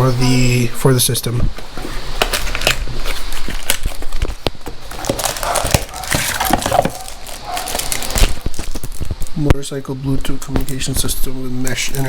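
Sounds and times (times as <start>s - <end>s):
paper and packaging rustling: 1.7s - 9.4s.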